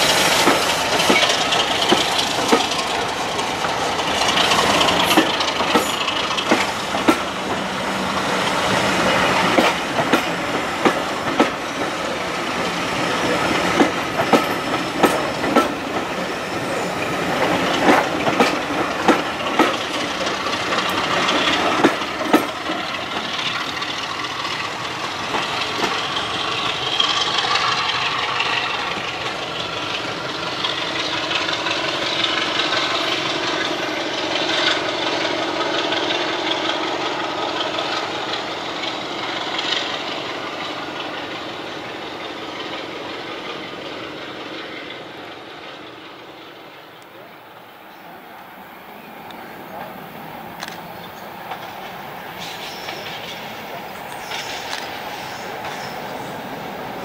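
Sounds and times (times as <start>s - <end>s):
wheels clicking over rail joints: 0.0s - 46.2s, 49.3s - 57.0s
train rolling rumble: 0.0s - 57.0s.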